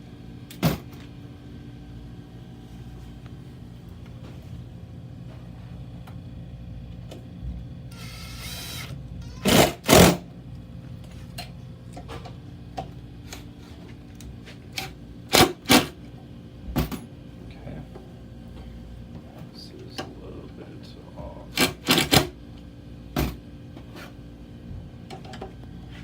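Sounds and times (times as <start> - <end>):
steady low hum: 0.0 - 26.0
power screwdriver driving screws: 7.9 - 10.2.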